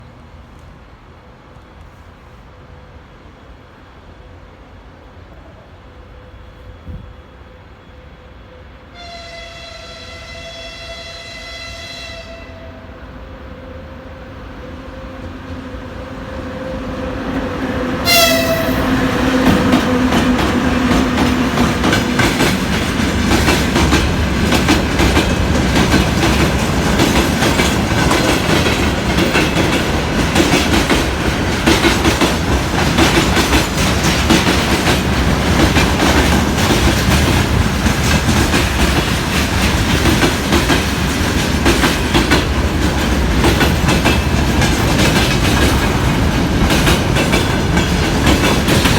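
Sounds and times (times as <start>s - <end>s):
electric locomotive low tone: 1.2s - 22.8s
locomotive whistle blast: 8.9s - 12.7s, 18.0s - 18.9s
train wheels clattering: 17.4s - 48.9s.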